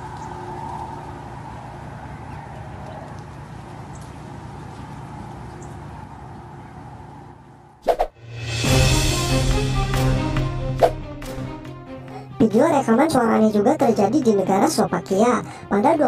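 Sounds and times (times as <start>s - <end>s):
low outdoor drone: 0.0s - 12.4s.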